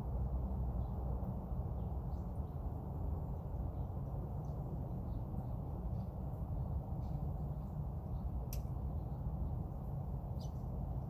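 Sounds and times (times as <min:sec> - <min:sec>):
low outdoor rumble: 0:00.0 - 0:11.0
faint bird chirps: 0:03.6 - 0:11.0.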